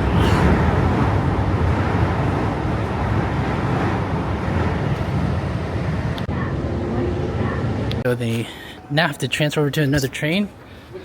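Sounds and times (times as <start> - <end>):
subway train rumbling on rails: 0.0 - 8.1.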